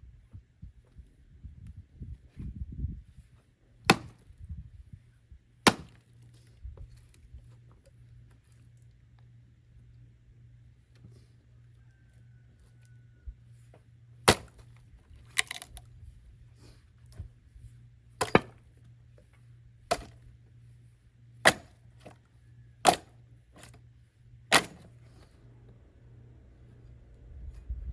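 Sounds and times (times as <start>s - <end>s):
axe splitting firewood: 3.8s - 4.3s, 5.6s - 6.2s, 14.2s - 15.8s, 18.2s - 18.8s, 19.9s - 20.3s, 21.4s - 22.2s, 22.8s - 23.8s, 24.5s - 25.3s.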